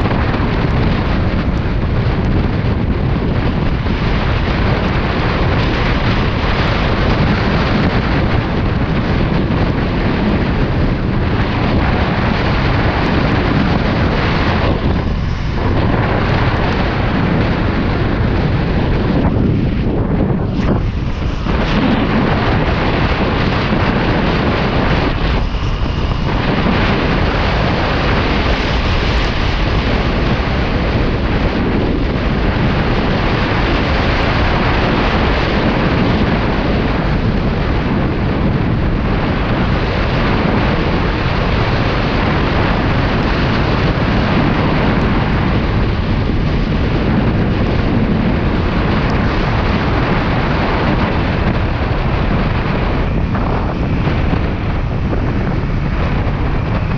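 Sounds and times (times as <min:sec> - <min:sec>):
wind rushing on microphone: 0:00.0 - 0:56.9.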